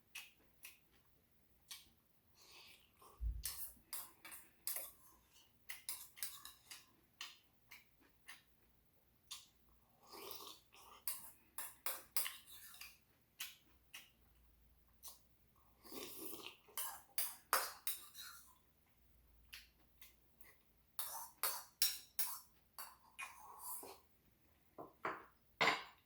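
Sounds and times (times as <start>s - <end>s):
chewing mouth clicks and smacks: 0.0s - 1.9s, 5.6s - 8.6s, 9.3s - 9.6s, 10.2s - 14.4s
slurping noodles: 15.8s - 17.0s.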